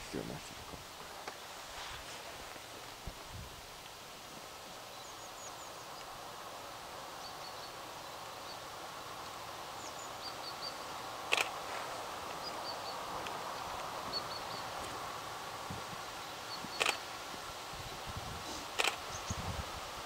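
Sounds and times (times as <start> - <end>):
small birds chirping: 3.8 - 20.0
distant approaching train: 6.4 - 17.5.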